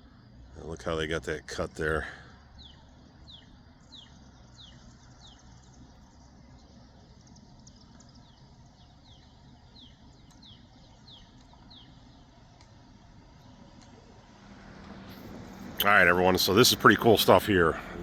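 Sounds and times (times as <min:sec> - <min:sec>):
faint low background rumble: 0:00.0 - 0:18.0.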